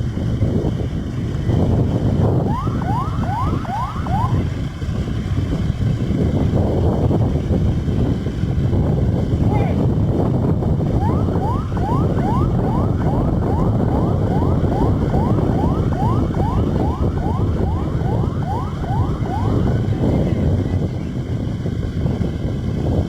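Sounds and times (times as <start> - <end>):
wind noise on microphone: 0.0 - 23.0
siren yelping: 2.2 - 4.6, 10.8 - 20.5.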